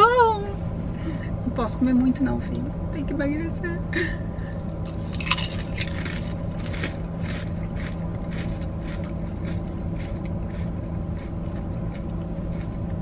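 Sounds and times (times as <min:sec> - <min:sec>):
car low hum: 0:00.0 - 0:13.0
people crunching potato chips: 0:04.8 - 0:13.0.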